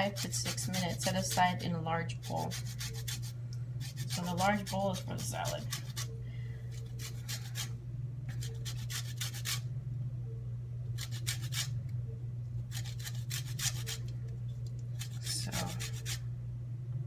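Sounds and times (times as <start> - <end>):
grater rasping: 0.0 - 1.6, 2.2 - 6.1, 6.8 - 7.7, 8.3 - 9.6, 11.0 - 11.7, 12.7 - 14.1, 14.9 - 16.2
steady low hum: 0.0 - 17.0.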